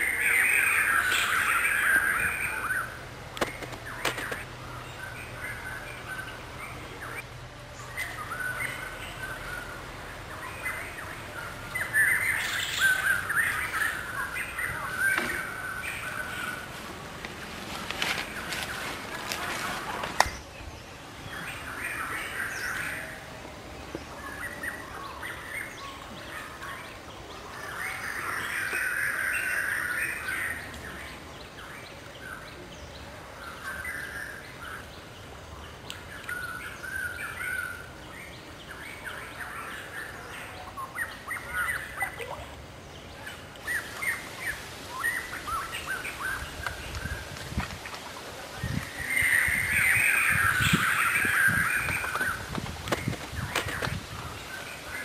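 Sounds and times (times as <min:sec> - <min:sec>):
birds chirping and calling: 0:00.0 - 0:07.2, 0:07.8 - 0:20.6, 0:23.9 - 0:55.0.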